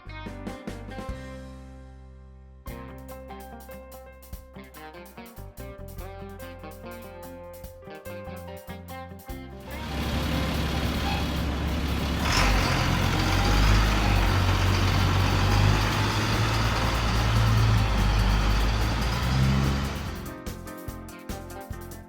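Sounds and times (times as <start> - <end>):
heavy vehicle engine running: 9.6 - 20.4.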